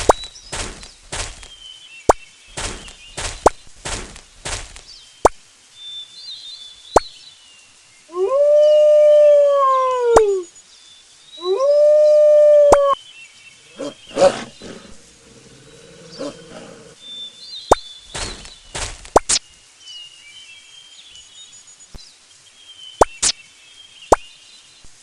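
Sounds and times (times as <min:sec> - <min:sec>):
faint bird chirps: 0:04.9 - 0:25.0
animal long calls: 0:13.6 - 0:17.5.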